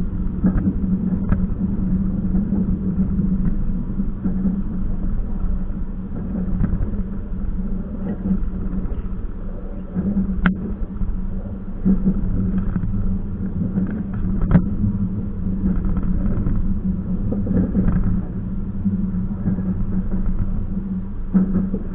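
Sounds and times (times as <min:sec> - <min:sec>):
train rumbling: 0:00.0 - 0:21.9.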